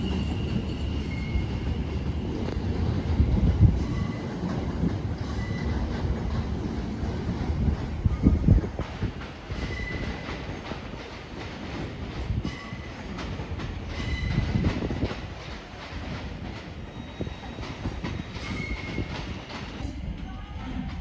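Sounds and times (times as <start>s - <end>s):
high wheel squeals: 0.0s - 2.5s
rail clicks: 0.0s - 21.0s
train running on track: 0.0s - 21.0s.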